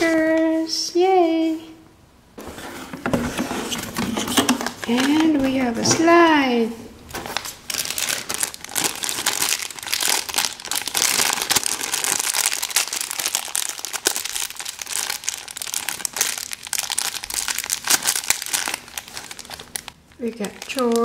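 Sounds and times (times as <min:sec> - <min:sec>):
plastic packaging crinkling: 0:04.2 - 0:06.2, 0:07.1 - 0:21.0.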